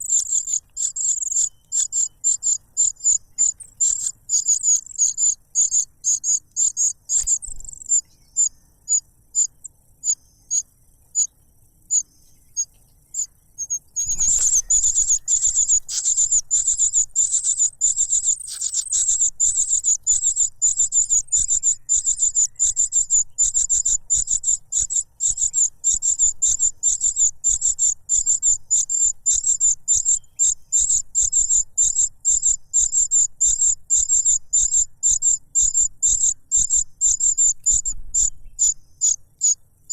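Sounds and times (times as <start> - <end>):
young cuckoo cheeping: 13.2 - 26.6.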